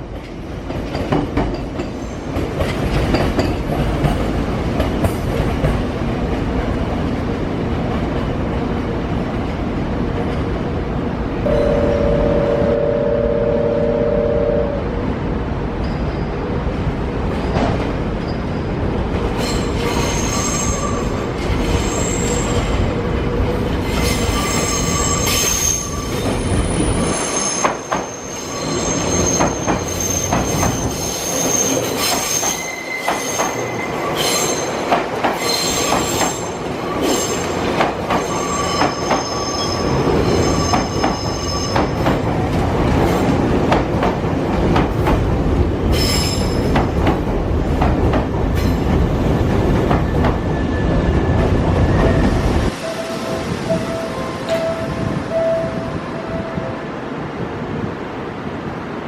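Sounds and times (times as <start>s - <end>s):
train wheels squealing: 17.4s - 18.8s, 19.4s - 22.8s, 23.8s - 34.8s, 35.4s - 37.5s, 38.1s - 42.1s, 45.9s - 46.8s.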